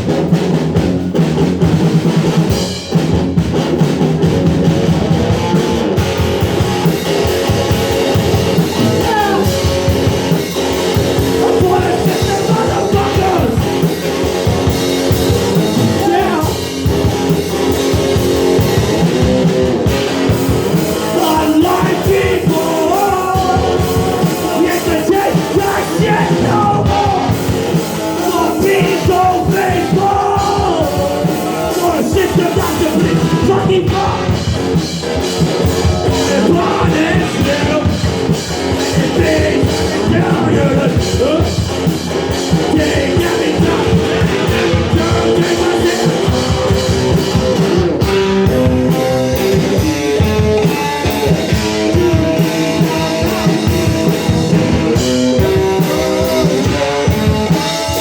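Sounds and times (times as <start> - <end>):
driving drum kit: 0.0 - 58.0
electric guitar: 0.0 - 58.0
person singing: 7.5 - 10.2, 10.9 - 13.8, 15.7 - 16.7, 20.8 - 34.5, 35.6 - 41.7, 42.4 - 48.0.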